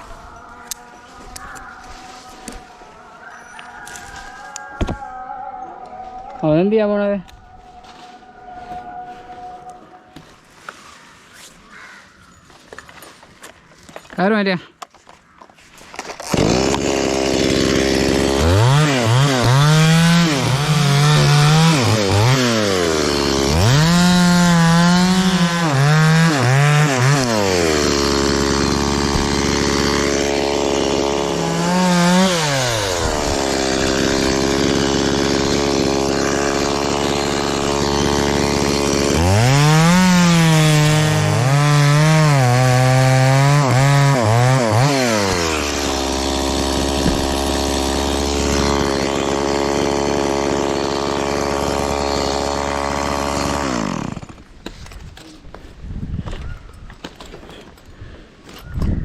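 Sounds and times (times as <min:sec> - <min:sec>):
chainsaw cutting wood: 0:15.9 - 0:55.6.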